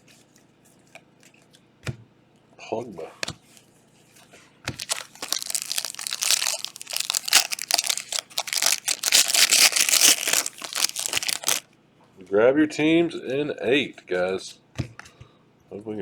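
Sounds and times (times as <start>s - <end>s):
plastic wrapper crinkling: 4.7s - 11.6s.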